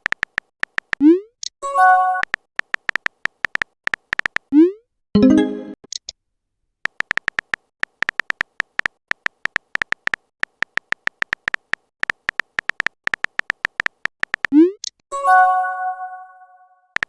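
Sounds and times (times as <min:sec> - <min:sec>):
phone keyboard tapping clicks: 0:00.0 - 0:01.0, 0:02.2 - 0:04.5, 0:06.8 - 0:15.0.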